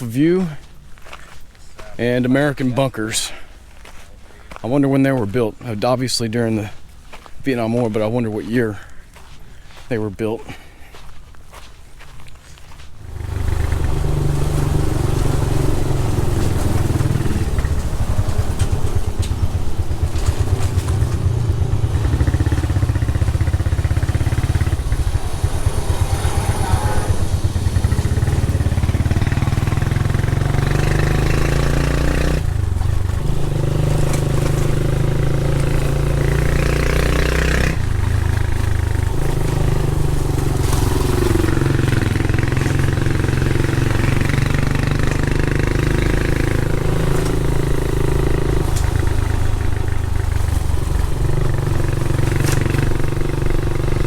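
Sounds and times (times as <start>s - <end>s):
motorcycle engine running: 12.9s - 54.0s.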